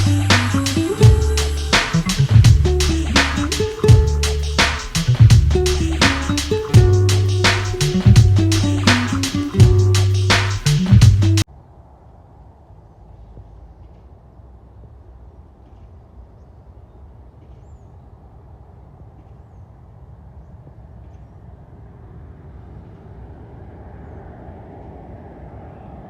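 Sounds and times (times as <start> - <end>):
distant jet engines rumbling: 18.1 - 26.0.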